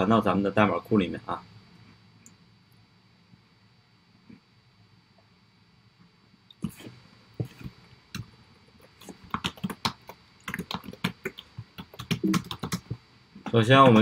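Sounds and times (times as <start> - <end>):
keyboard typing: 9.0 - 14.0.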